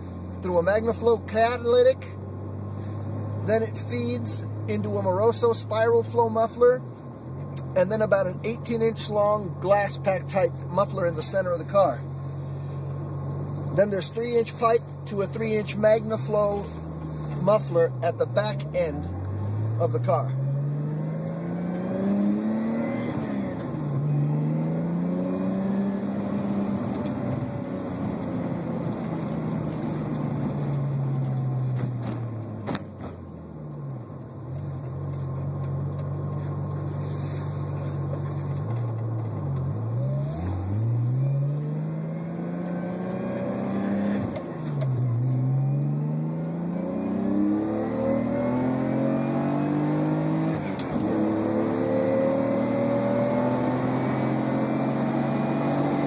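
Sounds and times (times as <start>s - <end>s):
car engine revving through gears: 2.4s - 56.0s.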